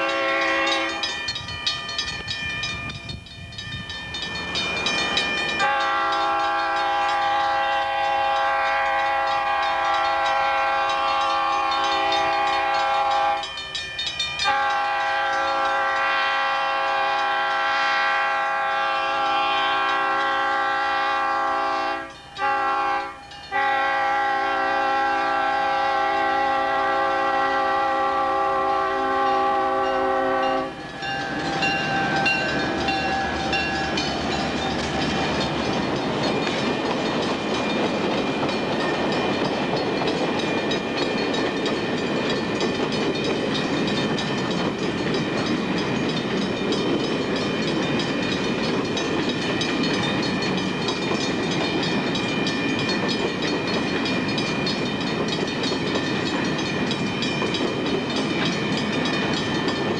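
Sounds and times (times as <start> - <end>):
locomotive air horn chord: 0.0 - 1.1, 5.6 - 13.6, 14.4 - 34.1
freight cars rumbling over rails: 0.0 - 59.9
thin high tones: 30.5 - 39.8.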